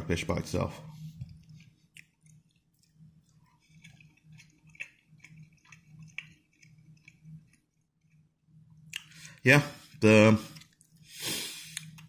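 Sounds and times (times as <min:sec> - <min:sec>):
person chewing with mouth clicks: 0:01.3 - 0:09.2, 0:11.6 - 0:12.0.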